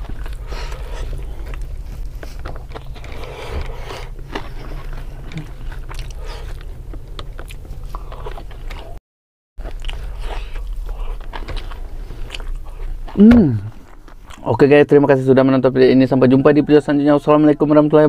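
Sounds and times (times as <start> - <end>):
steady low hum: 0.0 - 9.0, 9.6 - 16.2
wet chewing and mouth smacks: 0.0 - 9.0, 9.6 - 14.5.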